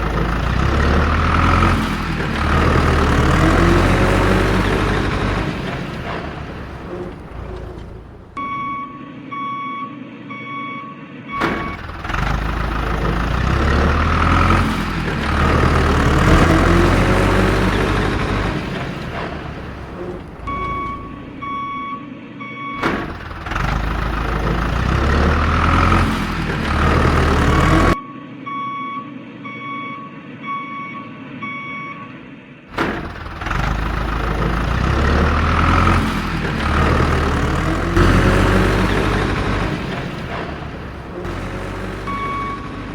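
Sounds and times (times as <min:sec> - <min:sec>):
heavy vehicle engine revving: 0:00.0 - 0:09.0, 0:11.4 - 0:22.1, 0:22.8 - 0:28.0, 0:32.7 - 0:42.9
reversing alarm beeping: 0:02.4 - 0:14.6, 0:15.3 - 0:26.0, 0:26.8 - 0:32.3, 0:41.3 - 0:42.9.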